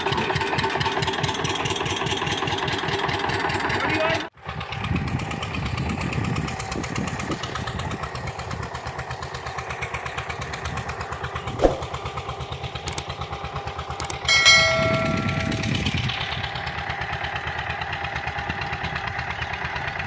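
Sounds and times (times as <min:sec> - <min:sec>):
tractor diesel engine running: 0:00.0 - 0:20.0
sharp knock: 0:11.6 - 0:12.0.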